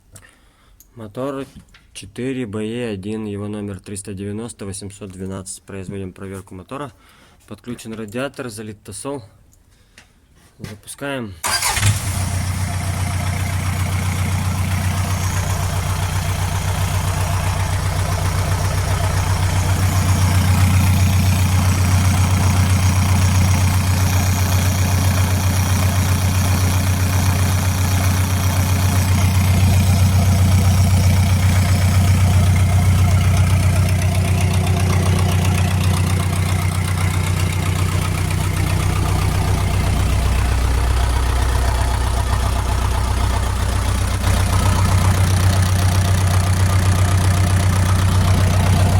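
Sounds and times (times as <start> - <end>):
diesel engine idling: 11.4 - 48.9.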